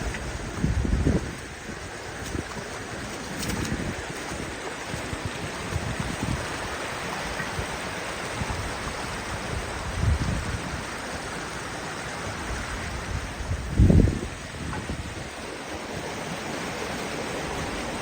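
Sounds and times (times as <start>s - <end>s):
creek water rushing: 0.0s - 18.0s
wind buffeting microphone: 0.0s - 18.0s.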